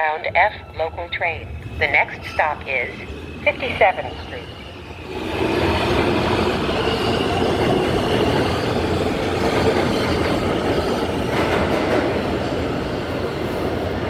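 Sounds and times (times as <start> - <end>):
subway train wheels rumbling on rail: 0.0 - 14.0.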